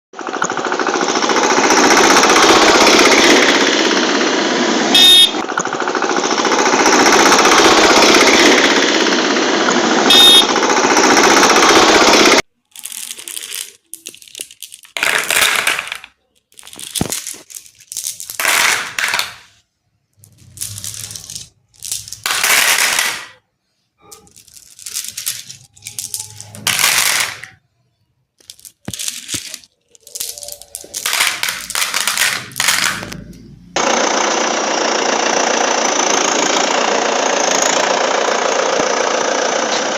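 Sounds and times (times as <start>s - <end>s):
glass marbles poured into plastic toy: 12.6s - 19.6s, 20.2s - 23.4s, 24.0s - 27.6s, 28.4s - 33.3s.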